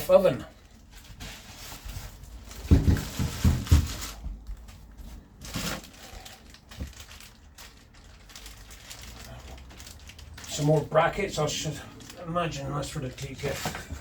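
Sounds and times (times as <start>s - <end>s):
packaging crinkling: 0.6s - 14.0s
dull knocks: 2.6s - 4.2s.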